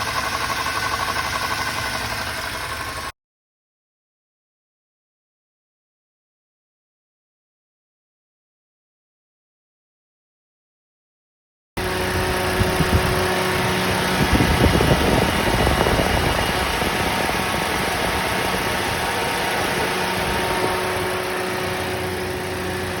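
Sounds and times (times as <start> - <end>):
car engine idling with whine: 0.0 - 3.1, 11.8 - 23.0.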